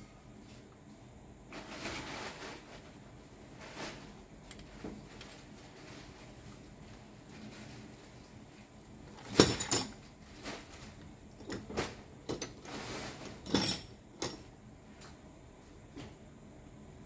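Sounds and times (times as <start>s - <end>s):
metal tools clinking and clattering: 9.2s - 10.0s, 11.4s - 14.5s.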